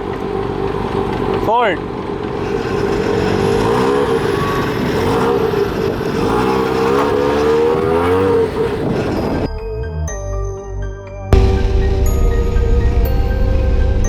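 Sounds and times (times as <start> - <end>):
car engine accelerating: 0.0 - 10.3.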